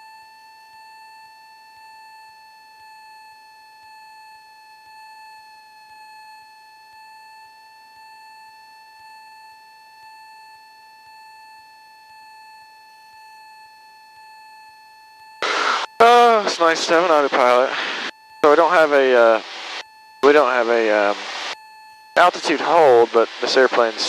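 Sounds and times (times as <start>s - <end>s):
high-pitched electronic whine: 15.4s - 24.0s.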